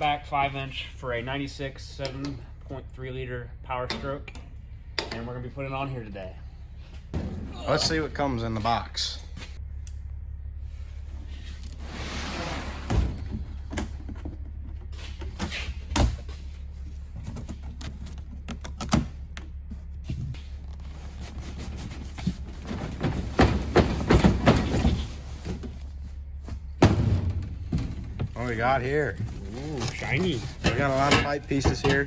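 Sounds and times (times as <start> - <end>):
steady low hum: 0.0 - 32.0
knocks and thuds: 7.1 - 8.1, 22.3 - 25.8, 26.7 - 29.5, 30.2 - 32.0.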